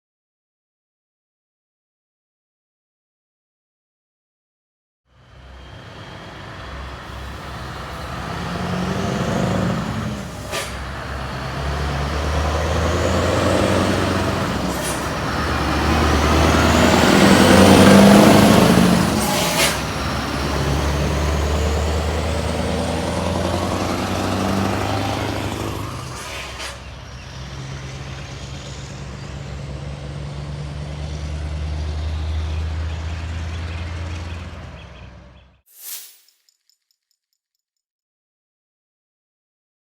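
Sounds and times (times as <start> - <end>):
truck diesel engine under load: 5.2 - 35.4
short sharp air hisses: 10.4 - 10.9, 19.2 - 19.9.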